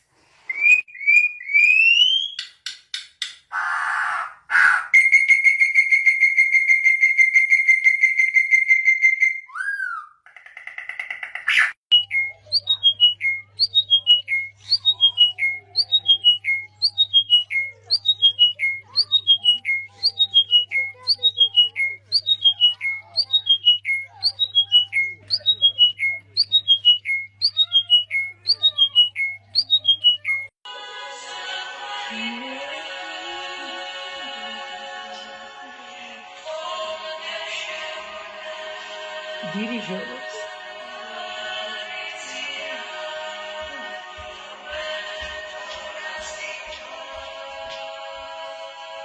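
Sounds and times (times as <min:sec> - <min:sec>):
songbird singing: 0:03.6 - 0:30.5.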